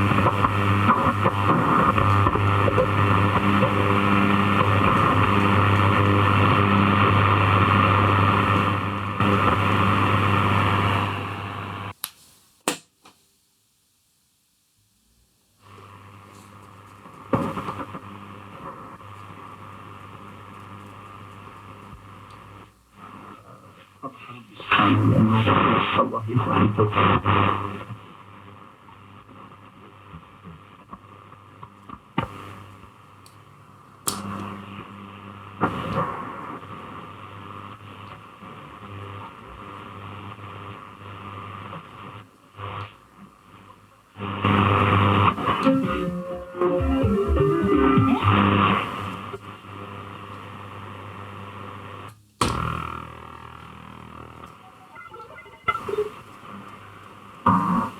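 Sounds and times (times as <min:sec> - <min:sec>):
radio music: 0:00.0 - 0:11.9, 0:22.1 - 0:28.6, 0:44.2 - 0:52.0, 0:52.7 - 0:57.9
steady hum: 0:00.0 - 0:12.0, 0:32.3 - 0:57.9
radio static hiss: 0:00.0 - 0:12.6, 0:15.5 - 0:57.9.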